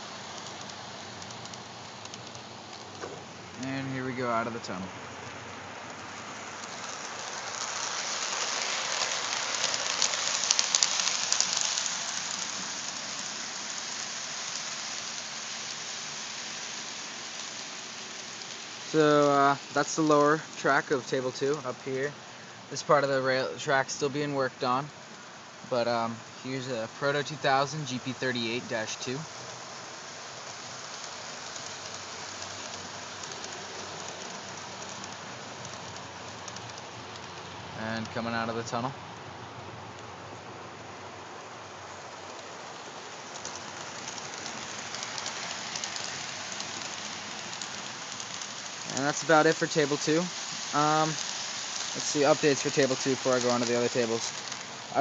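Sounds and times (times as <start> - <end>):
faint clicks: 0.0 - 3.6, 30.6 - 38.4, 42.2 - 49.6
model train wheels and motor hissing: 0.0 - 55.0.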